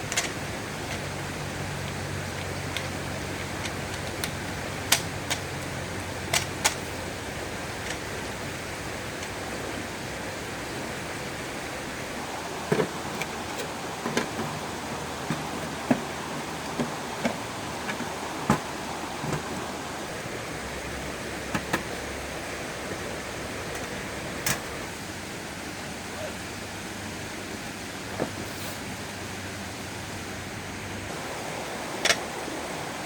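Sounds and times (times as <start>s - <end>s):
sharp clicks and knocks: 0.0s - 1.1s, 1.9s - 6.8s, 12.7s - 14.6s, 21.5s - 22.0s
stream running: 0.0s - 33.0s.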